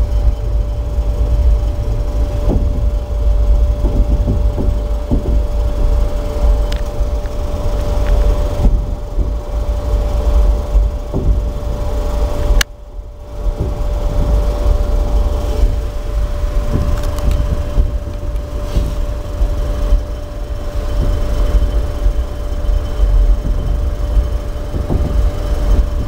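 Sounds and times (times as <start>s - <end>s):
faint steady whine: 0.0s - 26.0s
train rumble from inside: 0.0s - 26.0s
wheel knocks on track: 11.1s - 11.7s.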